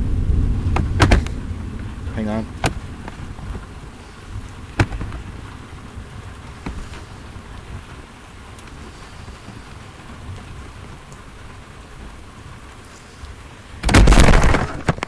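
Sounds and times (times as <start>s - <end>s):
rain drumming on vehicle roof: 0.0s - 15.0s
loud crash at microphone: 13.8s - 15.0s.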